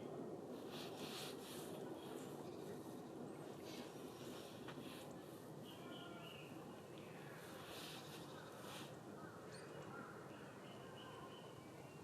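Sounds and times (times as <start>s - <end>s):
faint outdoor background noise: 0.0s - 12.0s
faint high bird call: 5.6s - 6.6s.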